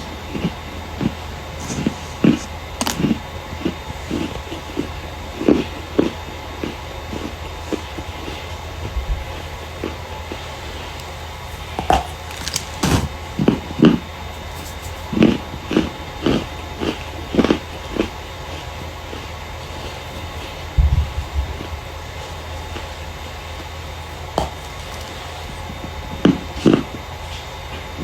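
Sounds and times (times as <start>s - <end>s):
low steady hum: 0.0s - 28.0s
starch being crushed: 1.0s - 4.3s, 10.9s - 13.3s, 24.1s - 25.6s.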